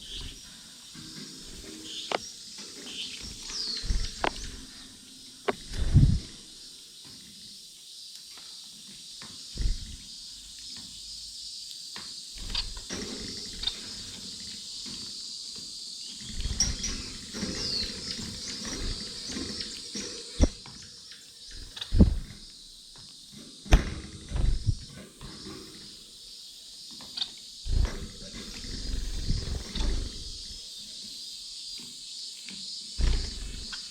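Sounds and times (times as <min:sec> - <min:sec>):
gliding bird calls: 0:00.0 - 0:06.7, 0:16.0 - 0:22.6, 0:27.0 - 0:30.7, 0:33.0 - 0:33.9
finches chirping: 0:00.0 - 0:33.9
low thumps and knocks: 0:03.3 - 0:04.8, 0:05.4 - 0:06.5, 0:09.6 - 0:10.0, 0:20.4 - 0:20.6, 0:21.5 - 0:22.5, 0:23.7 - 0:25.0, 0:27.7 - 0:30.6, 0:33.0 - 0:33.8.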